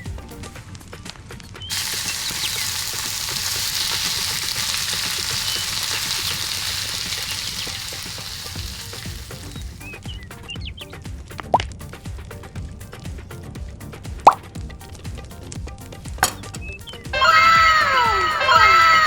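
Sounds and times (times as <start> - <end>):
food deep-frying in oil: 1.6 - 10.8.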